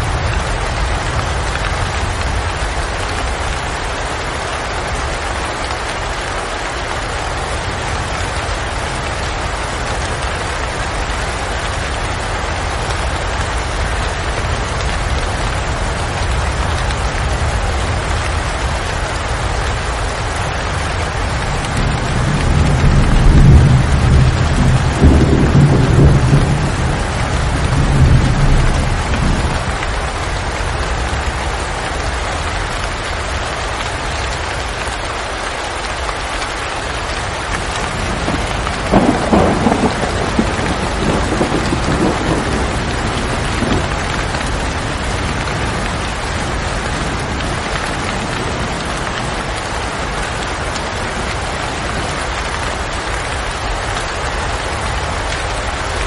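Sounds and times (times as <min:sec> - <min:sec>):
heavy rain hissing: 0:00.0 - 0:56.0
thunder rumbling: 0:08.6 - 0:31.7, 0:37.2 - 0:54.0.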